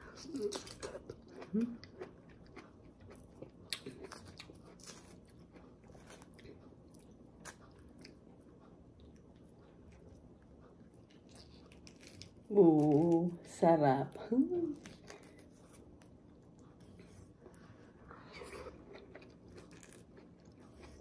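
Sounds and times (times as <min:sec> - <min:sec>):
chewing juicy fruit: 0:00.0 - 0:21.0
fruit membrane crackling: 0:11.2 - 0:13.4.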